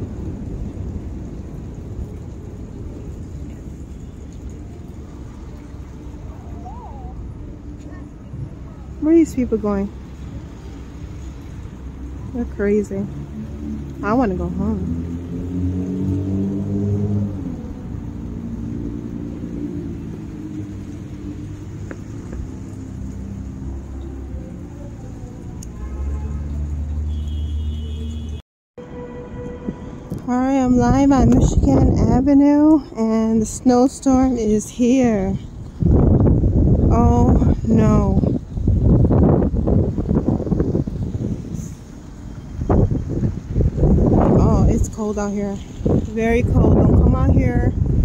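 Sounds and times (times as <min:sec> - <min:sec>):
vehicle engine rumbling: 0:00.0 - 0:48.0
wind buffeting microphone: 0:29.4 - 0:48.0.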